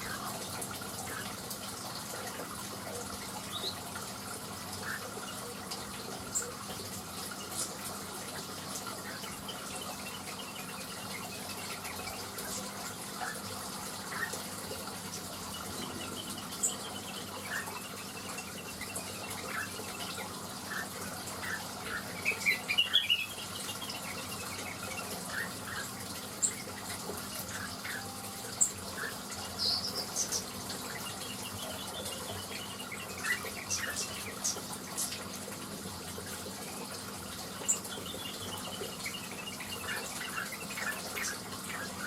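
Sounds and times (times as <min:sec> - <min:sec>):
bird chirping: 0:21.5 - 0:26.6, 0:27.3 - 0:34.6.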